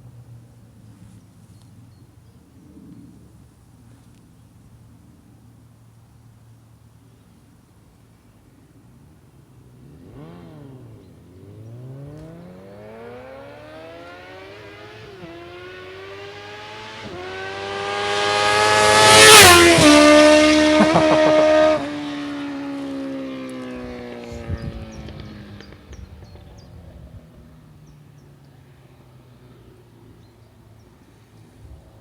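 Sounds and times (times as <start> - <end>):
motorcycle accelerating and passing: 8.6 - 32.0.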